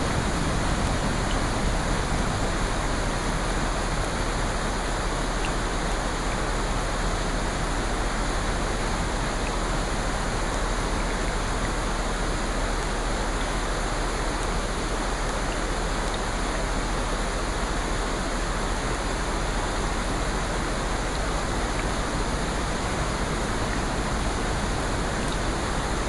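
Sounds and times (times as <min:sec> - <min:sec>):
rushing water hiss: 0:00.0 - 0:26.0
faint ticks: 0:05.4 - 0:05.6.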